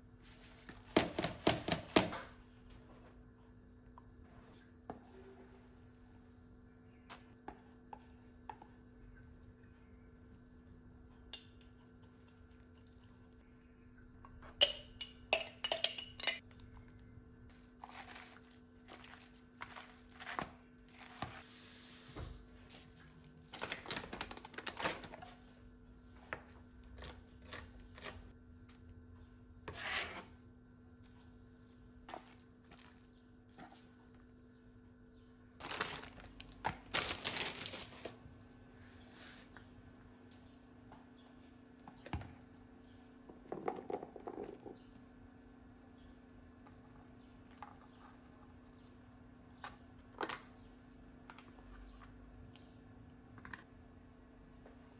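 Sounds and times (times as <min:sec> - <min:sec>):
dishes and cutlery clinking: 0:14.6 - 0:16.4.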